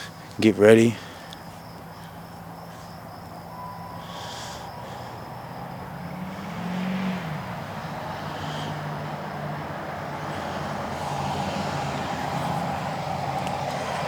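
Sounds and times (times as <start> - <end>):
faint insect buzz: 0.0 - 6.6
vehicle engine running: 0.0 - 14.0.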